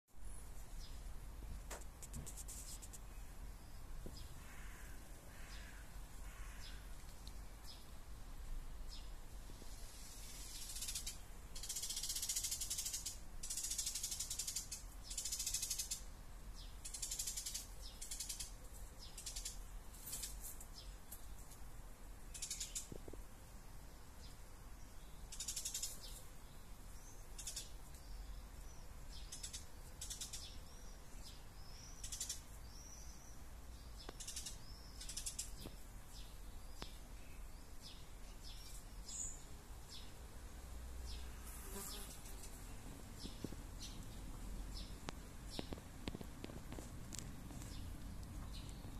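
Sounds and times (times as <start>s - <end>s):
rasping rattling bird calls: 4.4s - 6.8s, 10.3s - 16.0s, 16.8s - 18.6s, 22.3s - 22.9s, 25.3s - 26.0s, 27.4s - 27.7s, 29.2s - 30.6s, 32.0s - 32.4s, 34.1s - 35.6s
thin bird chirps: 22.3s - 23.0s, 27.1s - 40.1s.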